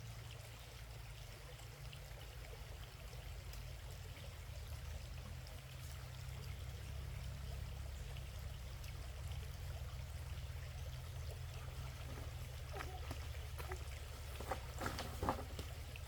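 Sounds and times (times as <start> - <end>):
water running: 9.6 - 16.0.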